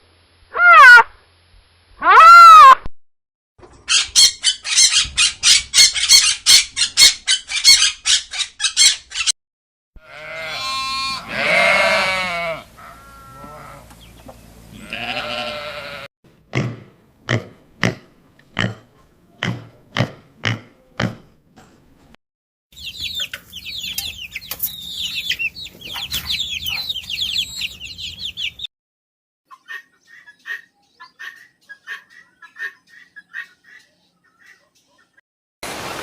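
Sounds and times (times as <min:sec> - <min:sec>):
farm animals calling: 0:00.5 - 0:01.1, 0:03.8 - 0:09.3, 0:10.0 - 0:16.1, 0:22.8 - 0:28.7, 0:29.5 - 0:35.2.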